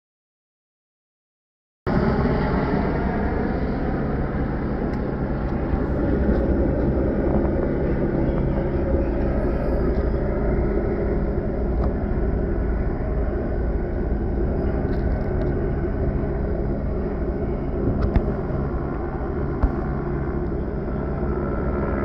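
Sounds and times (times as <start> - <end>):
constant low hum: 1.9 - 22.0
engine rumble: 1.9 - 22.0.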